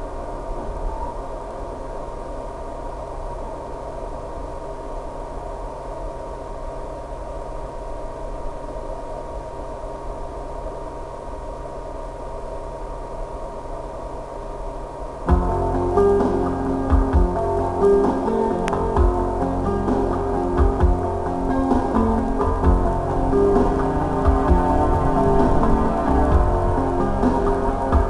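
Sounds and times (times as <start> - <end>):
drone propeller whine: 0.0 - 28.0
wind rushing: 15.2 - 28.0.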